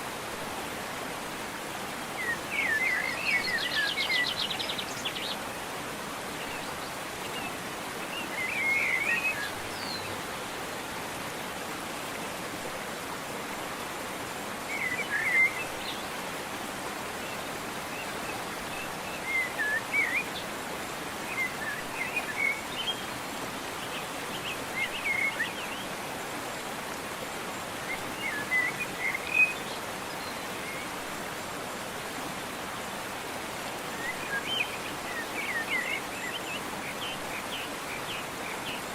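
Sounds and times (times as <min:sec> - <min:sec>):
waterfall rushing: 0:00.0 - 0:38.9
songbird chirping: 0:17.2 - 0:20.6, 0:27.5 - 0:31.0, 0:33.8 - 0:38.9.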